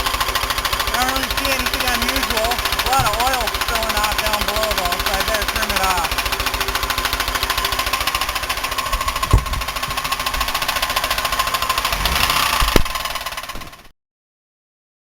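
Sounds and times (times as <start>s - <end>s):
engine thumps: 0.0s - 13.8s
car engine heavy knocking: 0.0s - 13.9s.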